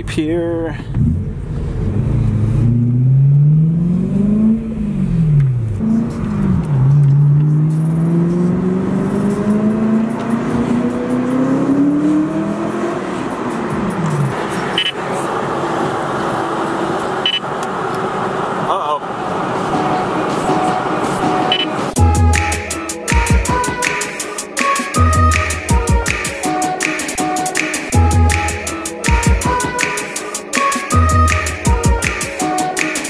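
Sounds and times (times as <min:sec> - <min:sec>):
car engine accelerating: 0:00.0 - 0:22.3.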